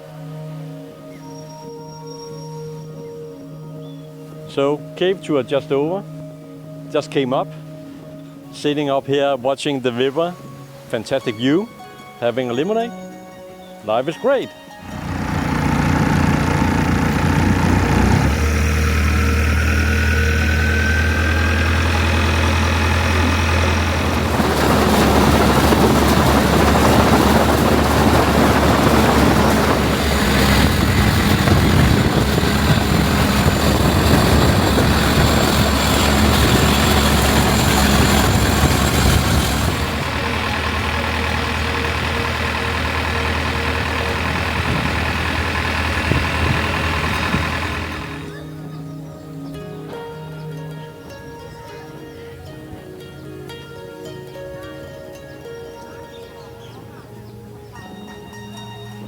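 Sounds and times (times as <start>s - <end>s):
engine humming: 14.7s - 49.8s
loud rushing noise: 14.9s - 48.4s.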